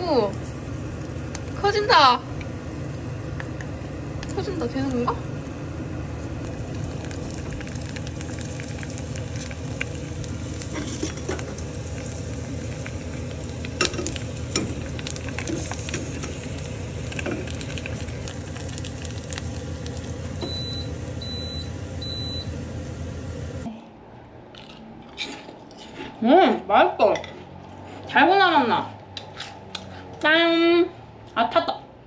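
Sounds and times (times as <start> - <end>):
oil popping and crackling: 0.0 - 22.4
chips sizzling in hot oil: 0.0 - 23.6.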